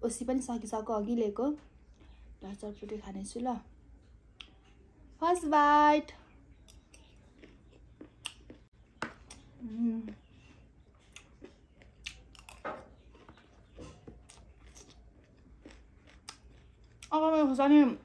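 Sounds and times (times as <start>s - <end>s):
crunchy snack chewing: 6.7s - 17.1s
person humming: 9.6s - 10.1s.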